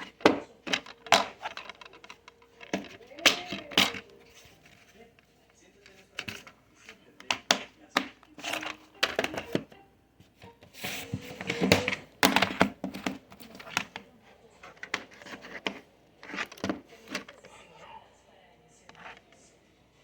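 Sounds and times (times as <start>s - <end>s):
handling clicks and knocks: 0.0s - 17.4s.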